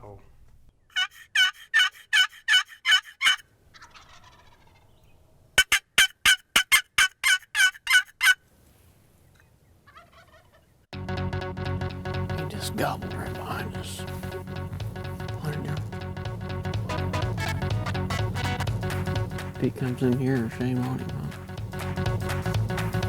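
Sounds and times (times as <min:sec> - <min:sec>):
turkey yelping: 0:00.9 - 0:05.0, 0:05.6 - 0:08.4, 0:09.9 - 0:10.6, 0:16.9 - 0:18.6
faint turkey gobble: 0:00.9 - 0:08.4, 0:09.3 - 0:10.7.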